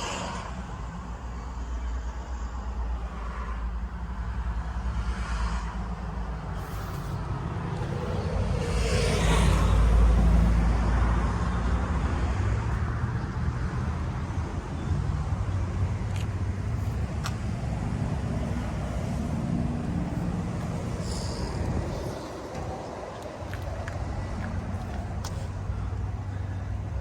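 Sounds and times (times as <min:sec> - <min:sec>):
vehicle engine rumble: 0:00.0 - 0:27.0
vehicle passing: 0:06.4 - 0:12.0, 0:15.5 - 0:26.3.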